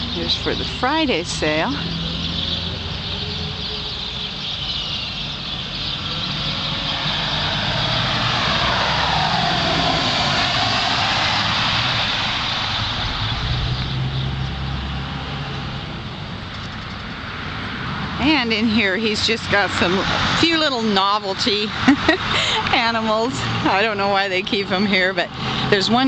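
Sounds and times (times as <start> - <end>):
motor vehicle driving past: 0.0 - 4.2, 5.8 - 16.4
low engine hum: 5.7 - 20.7.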